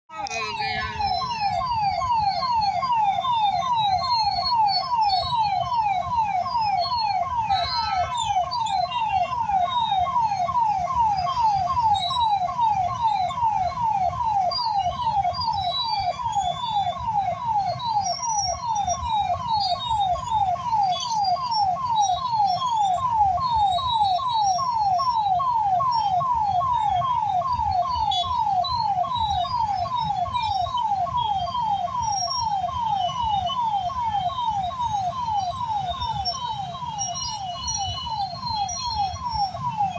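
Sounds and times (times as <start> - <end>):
downward sweeping electronic alarm: 0.2 - 39.9.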